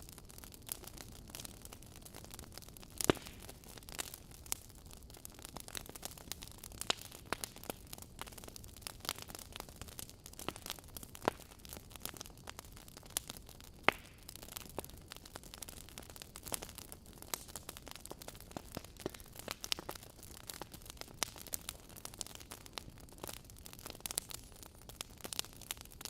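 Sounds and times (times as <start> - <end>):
logs crackling and popping: 0.0 - 26.0
low hiss of fire: 0.0 - 26.0.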